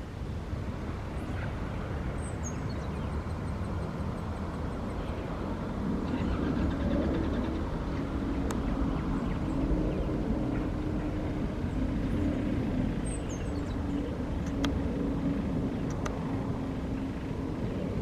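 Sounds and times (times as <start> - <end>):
jet engines rumbling: 0.0 - 18.0
low steady drone: 0.0 - 18.0.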